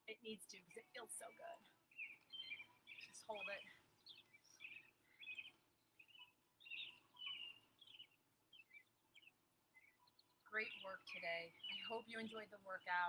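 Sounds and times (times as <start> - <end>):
faint birdsong chirps: 0.0 - 13.0.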